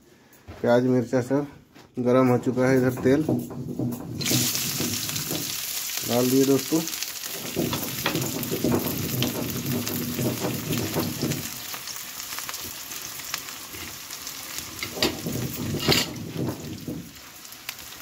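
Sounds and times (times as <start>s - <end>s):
onions sizzling in hot oil: 3.6s - 18.0s
sharp oil crackles: 4.2s - 18.0s.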